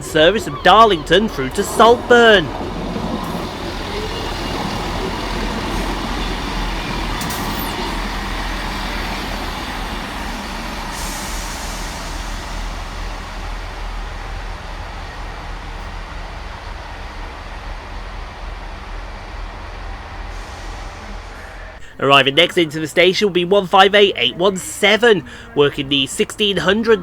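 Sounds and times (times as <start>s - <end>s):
brake squeal: 0.0s - 27.0s
diesel train engine rumble: 0.0s - 27.0s
air hiss: 3.3s - 13.4s.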